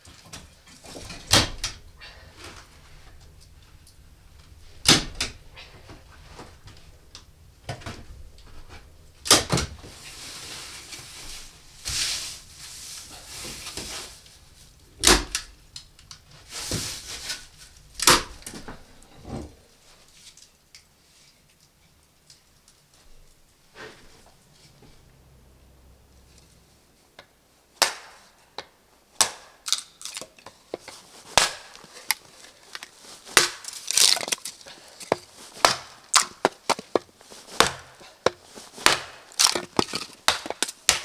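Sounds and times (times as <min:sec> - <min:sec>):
rustling: 0:00.0 - 0:21.4, 0:30.0 - 0:41.0
sharp knocks and bumps: 0:00.7 - 0:19.6, 0:31.4 - 0:41.0.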